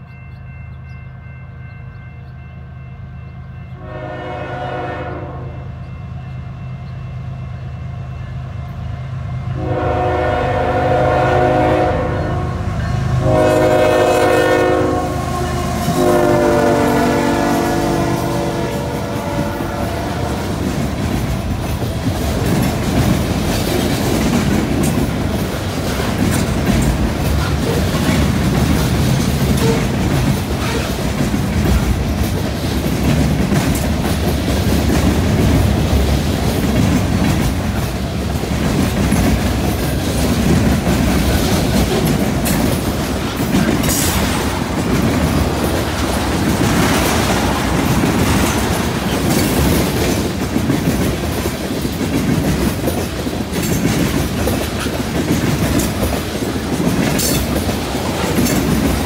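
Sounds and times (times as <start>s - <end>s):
steel wheels rumbling: 7.1s - 59.0s
wheels clacking over rail joints: 15.8s - 59.0s.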